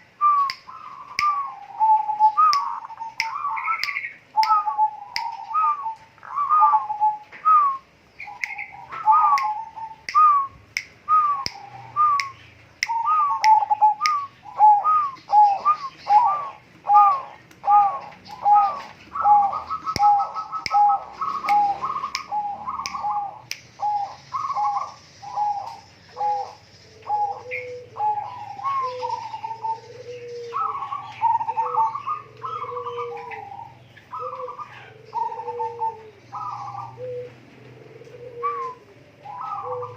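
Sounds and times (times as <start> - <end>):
lower bird notes: 0.0 - 39.9
sharp clicks: 2.5 - 4.6, 9.4 - 11.6, 21.4 - 23.7.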